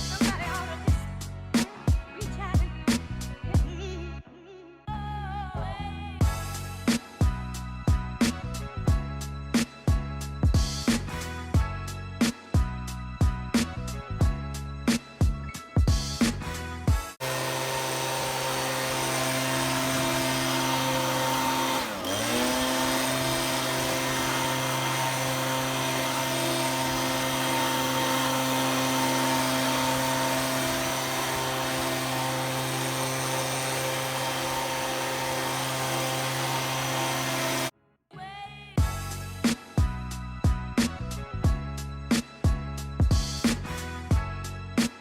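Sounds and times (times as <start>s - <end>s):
power tool motor running: 17.2s - 37.7s.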